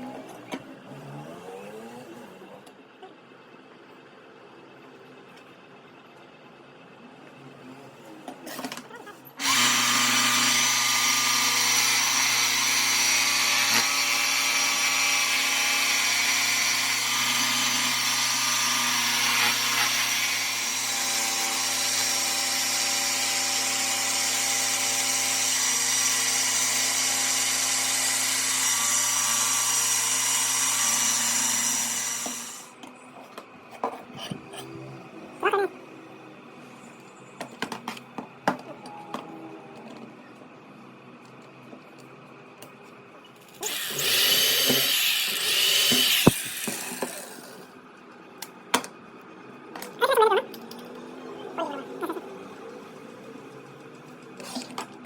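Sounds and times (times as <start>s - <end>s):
electric power tool running: 9.4s - 32.8s, 43.5s - 47.7s.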